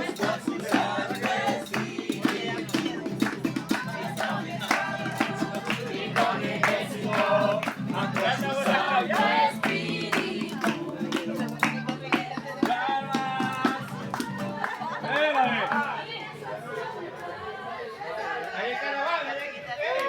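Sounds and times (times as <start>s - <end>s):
rhythmic hand clapping: 0.0s - 16.0s
group singing a praise song: 0.0s - 20.0s.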